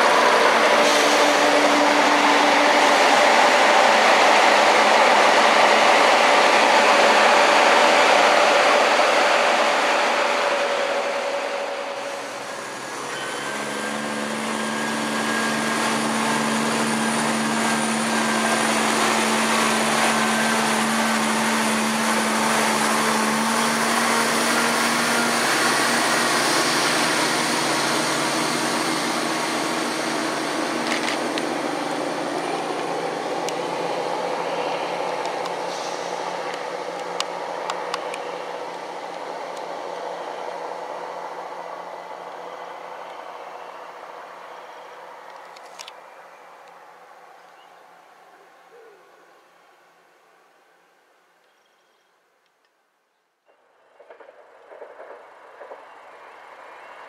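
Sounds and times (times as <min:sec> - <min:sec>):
diesel drone with low hum: 0:00.0 - 0:47.0
train engine and wheel rush: 0:00.0 - 0:50.8, 0:53.5 - 0:57.0.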